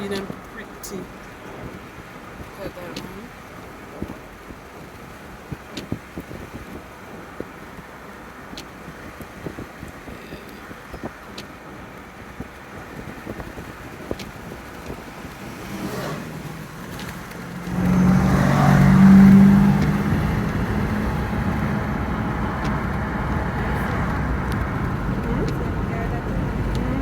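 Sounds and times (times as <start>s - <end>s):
car road noise: 0.0s - 27.0s
low engine drone: 14.4s - 27.0s.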